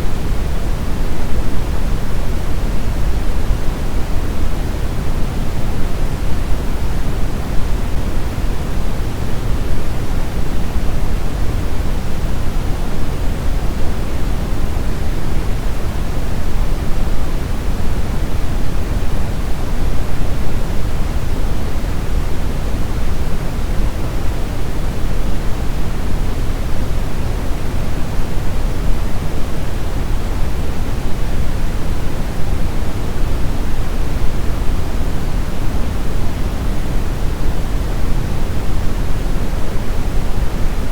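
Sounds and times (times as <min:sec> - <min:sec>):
brown noise: 0:00.0 - 0:40.9.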